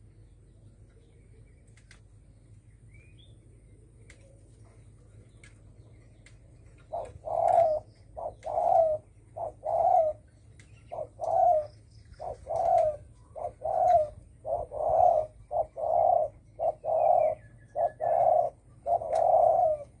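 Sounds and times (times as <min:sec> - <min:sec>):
dove cooing: 0:06.8 - 0:20.0.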